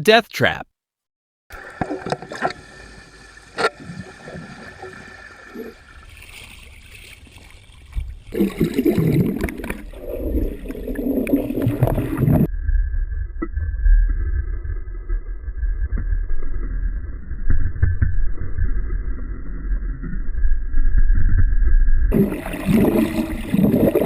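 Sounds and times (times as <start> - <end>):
water churning and gurgling: 1.5 - 12.5, 22.1 - 24.0.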